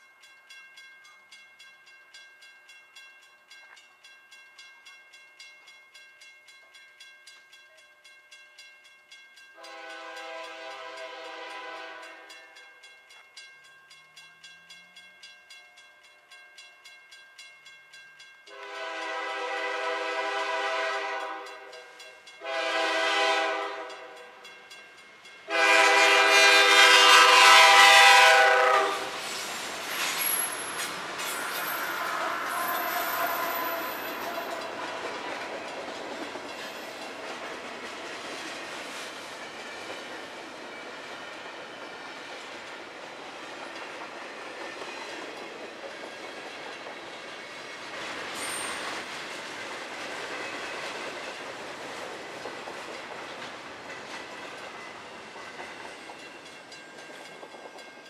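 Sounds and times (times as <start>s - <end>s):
train wheels clickety-clack: 9.4s - 58.0s
locomotive air horn: 9.6s - 12.3s, 18.5s - 21.8s, 22.4s - 24.2s, 25.5s - 29.2s, 31.3s - 34.7s.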